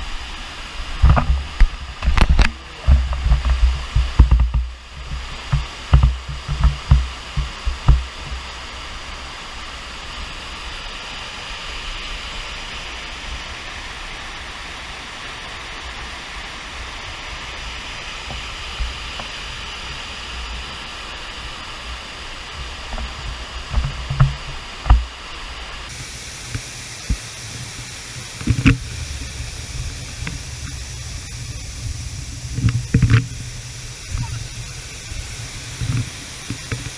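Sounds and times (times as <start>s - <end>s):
waterfall rushing: 25.9s - 36.9s.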